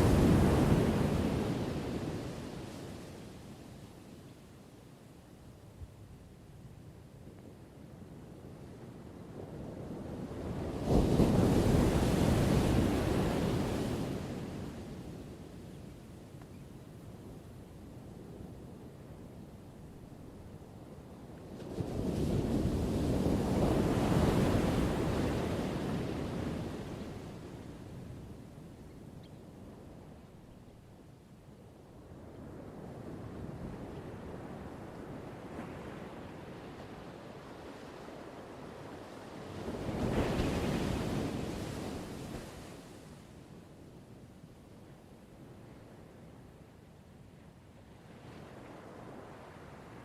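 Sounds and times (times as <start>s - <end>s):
ocean waves washing: 0.0s - 3.7s, 21.0s - 28.5s.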